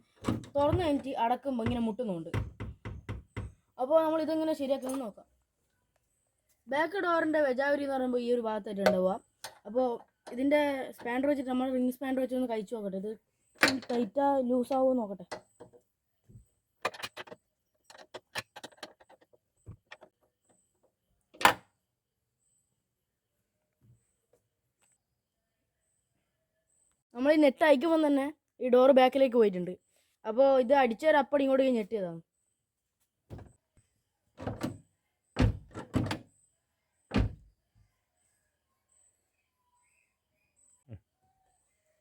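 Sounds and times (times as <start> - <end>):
car door knock: 1.6 - 3.6.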